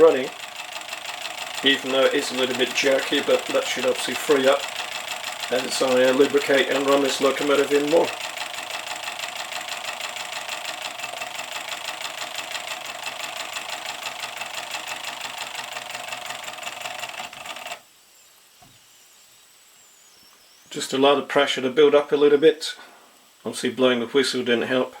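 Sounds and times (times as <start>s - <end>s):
steam locomotive chuffing: 0.0s - 17.6s.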